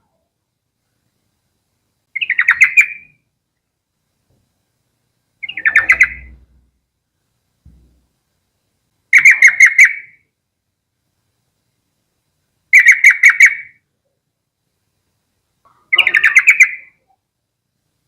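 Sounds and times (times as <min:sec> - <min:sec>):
bulbul singing: 0:02.1 - 0:03.2, 0:05.4 - 0:06.7, 0:15.7 - 0:17.0.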